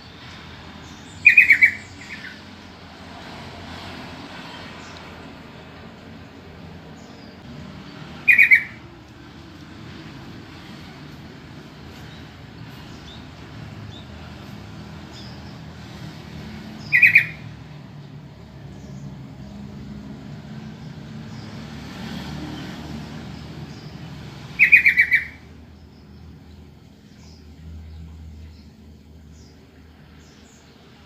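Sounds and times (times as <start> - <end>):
harsh pulsed bird calls: 0.8 - 2.5, 6.9 - 9.0, 11.8 - 17.7, 23.4 - 27.4.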